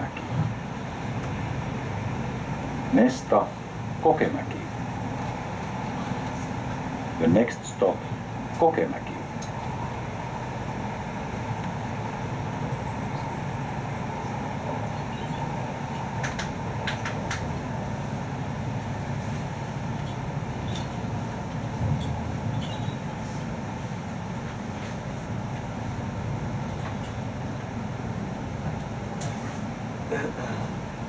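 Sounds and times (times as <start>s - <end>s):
train carriage rolling rumble: 0.0s - 31.0s.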